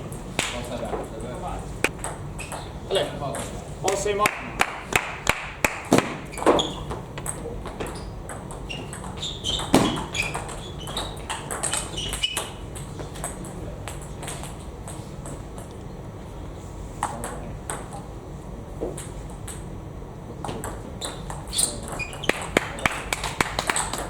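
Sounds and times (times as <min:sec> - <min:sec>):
short high squeaks: 0:06.3 - 0:06.9, 0:08.7 - 0:12.6, 0:21.0 - 0:22.6.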